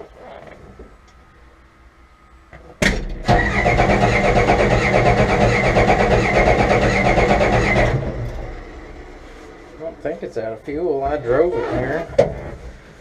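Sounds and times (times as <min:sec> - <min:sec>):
starter cranking diesel engine: 0:03.1 - 0:09.3.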